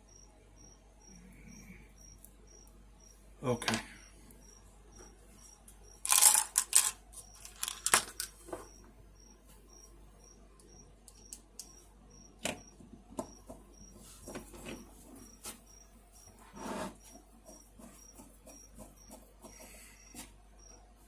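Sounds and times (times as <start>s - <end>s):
small parts and tools clicking: 5.7s - 8.5s, 10.6s - 11.8s.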